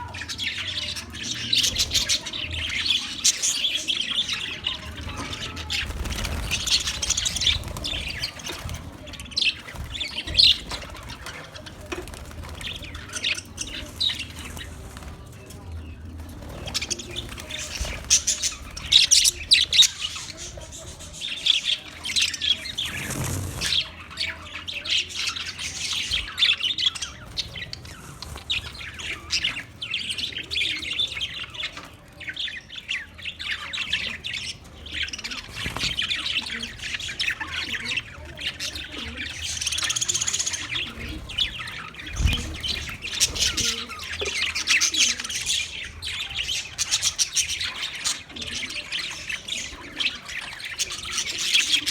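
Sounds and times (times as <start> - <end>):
budgerigars chirping: 16.6 - 51.9.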